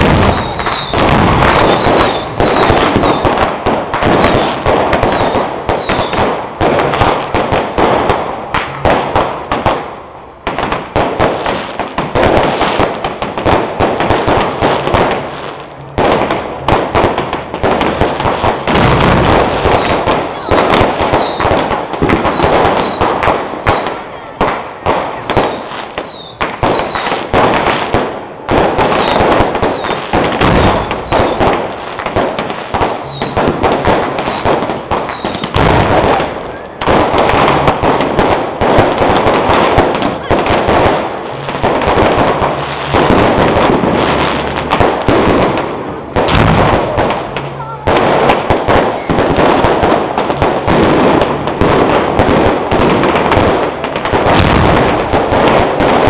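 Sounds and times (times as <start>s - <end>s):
firework whistles: 0.0s - 3.4s, 4.0s - 6.2s, 7.2s - 8.1s, 18.1s - 24.0s, 25.0s - 27.9s, 28.5s - 31.6s, 32.8s - 38.0s
fireworks cracks and pops: 0.0s - 56.0s.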